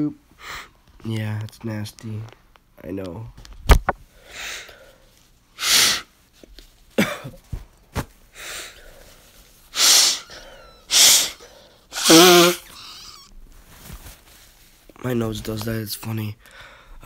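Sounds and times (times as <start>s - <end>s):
person blowing nose: 5.6s - 6.1s, 9.6s - 13.3s.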